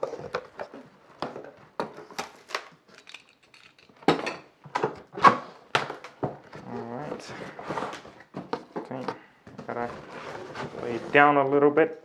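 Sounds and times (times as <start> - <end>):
cardboard scraping and knocking: 5.3 - 8.8, 9.5 - 11.3.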